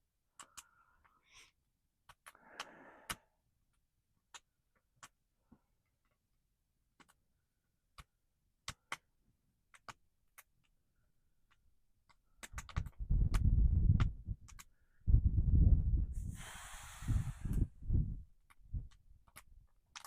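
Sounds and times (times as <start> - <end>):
wind gusting against microphone: 12.8 - 18.9.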